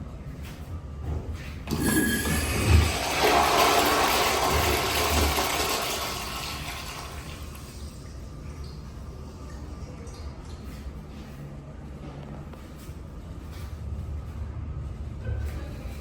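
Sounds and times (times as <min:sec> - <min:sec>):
toilet flushing: 0:01.6 - 0:11.0.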